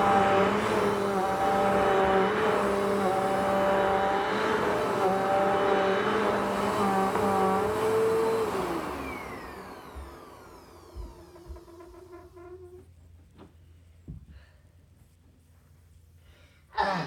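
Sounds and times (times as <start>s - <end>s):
vacuum cleaner motor whine: 0.0s - 12.9s.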